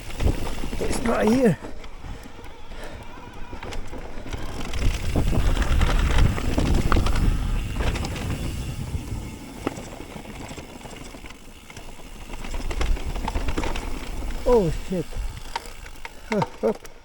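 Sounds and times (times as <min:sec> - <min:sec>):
bike knocks and rattles: 0:00.0 - 0:02.6, 0:03.4 - 0:16.9
bike tyres rumbling on trail: 0:00.0 - 0:17.0
wind on helmet camera: 0:04.5 - 0:10.0, 0:15.1 - 0:15.5.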